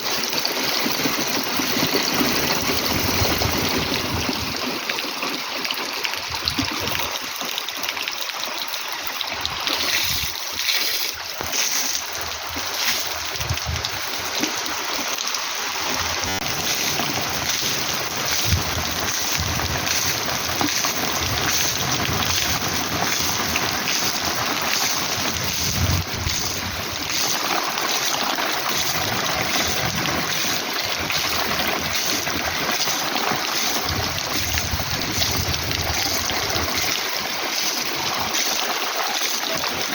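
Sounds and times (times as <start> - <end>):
heavy rain falling: 0.0 - 39.9
wind rumbling on microphone: 2.3 - 4.7, 6.2 - 7.2, 9.4 - 10.6, 12.1 - 14.8, 15.8 - 27.6, 28.6 - 32.8, 33.7 - 37.3.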